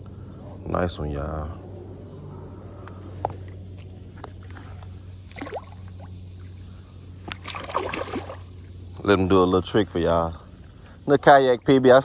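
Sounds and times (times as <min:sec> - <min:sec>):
water dripping and lapping: 0:03.4 - 0:06.6, 0:07.2 - 0:09.0
knocks and splashes: 0:05.3 - 0:06.1, 0:07.2 - 0:08.6.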